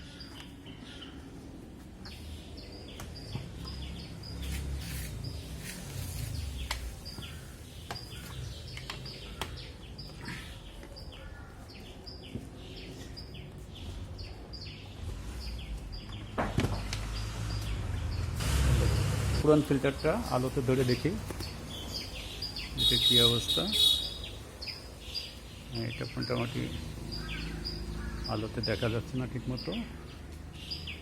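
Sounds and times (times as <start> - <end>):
small bird chirping: 20.9 - 31.0.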